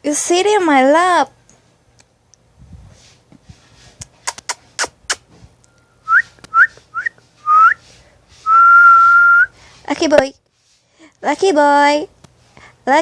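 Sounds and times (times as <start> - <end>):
person whistling rising notes: 5.8 - 7.8, 8.4 - 9.5.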